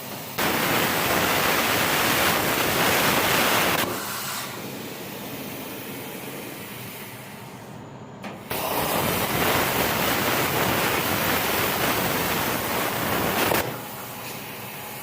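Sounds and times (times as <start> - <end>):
plasma cutter torch hissing: 0.1 - 7.3, 8.4 - 14.4.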